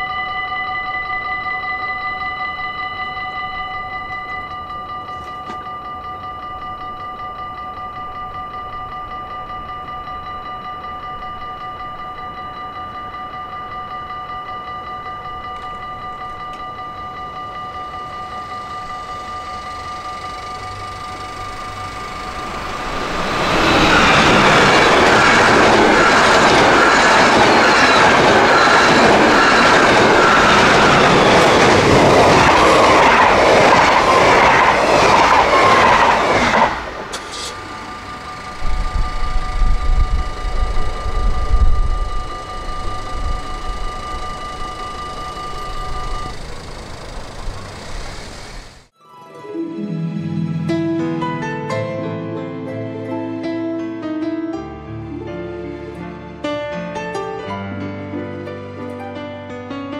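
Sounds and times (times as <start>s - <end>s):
level crossing warning bell: 0.0s - 48.9s
train passing at speed: 1.2s - 48.9s.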